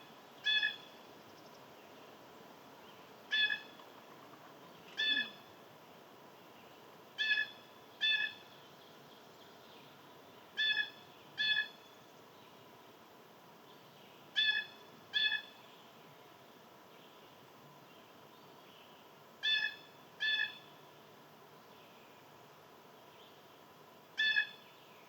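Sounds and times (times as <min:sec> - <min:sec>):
bird calling: 0:00.4 - 0:00.9, 0:03.3 - 0:03.8, 0:04.9 - 0:05.5, 0:07.2 - 0:08.5, 0:10.6 - 0:11.8, 0:14.4 - 0:15.6, 0:19.4 - 0:20.7, 0:24.2 - 0:24.7.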